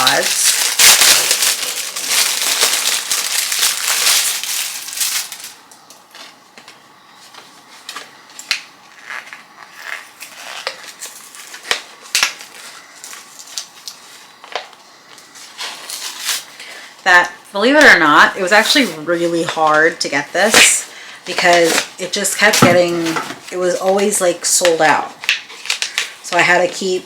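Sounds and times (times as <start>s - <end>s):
packaging crumpled and torn: 0.0s - 5.6s, 8.5s - 14.6s, 25.2s - 26.2s.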